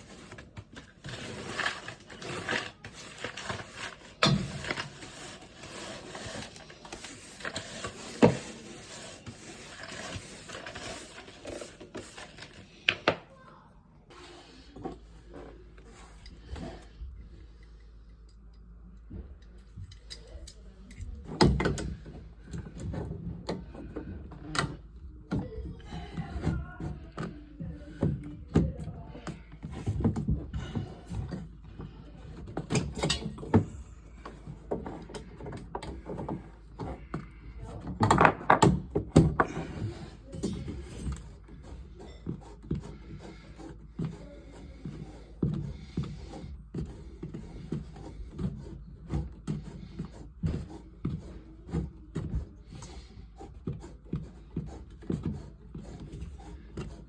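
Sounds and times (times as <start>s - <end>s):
tools and parts clattering: 0.0s - 13.2s, 29.6s - 42.8s.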